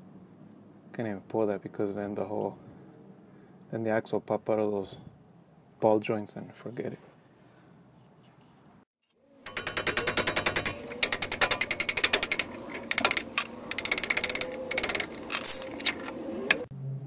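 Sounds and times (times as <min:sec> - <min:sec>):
ratchet wrench clicking: 0:09.4 - 0:16.6.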